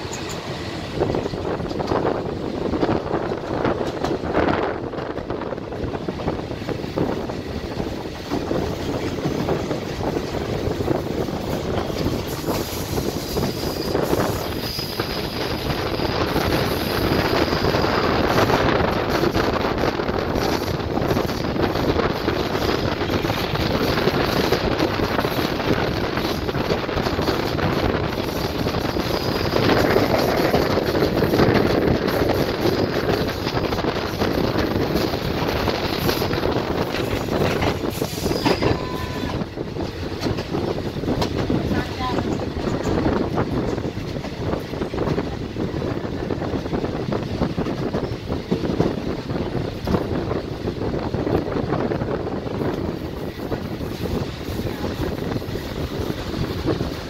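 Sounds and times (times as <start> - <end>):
train rushing rumble: 0.0 - 57.0
wind buffeting microphone: 0.0 - 57.0.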